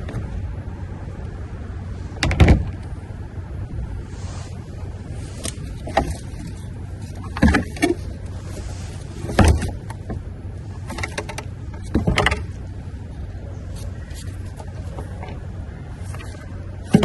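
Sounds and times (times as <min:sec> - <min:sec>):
steady low hum: 0:00.0 - 0:17.0
items knocking and clattering: 0:07.2 - 0:08.1, 0:16.2 - 0:17.0.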